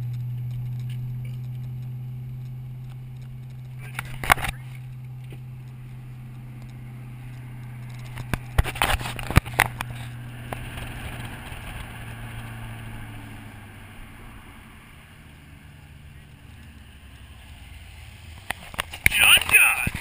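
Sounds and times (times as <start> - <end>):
sharp clicks and knocks: 0.0 - 12.5
car engine humming: 0.0 - 20.0.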